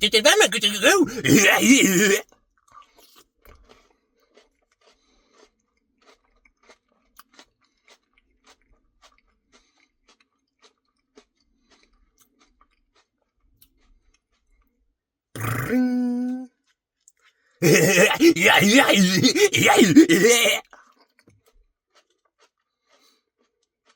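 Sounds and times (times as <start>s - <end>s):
chewing crunchy food: 0.4s - 14.5s, 21.9s - 23.9s
mouth clicks: 15.4s - 16.2s.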